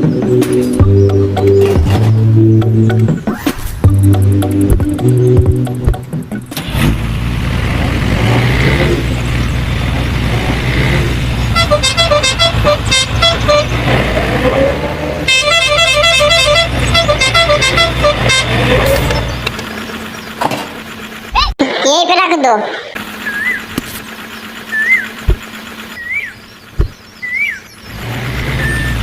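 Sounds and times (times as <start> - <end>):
truck engine running: 0.0 - 29.0
truck horn tooting: 10.8 - 19.4.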